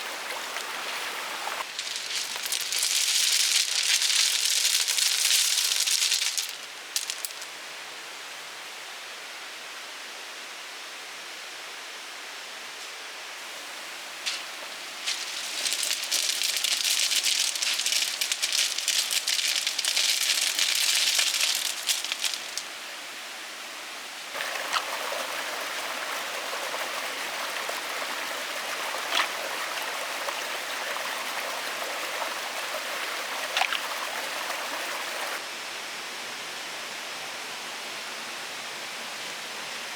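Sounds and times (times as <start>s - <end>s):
loud crackly rustling: 1.6s - 7.5s, 14.3s - 22.7s.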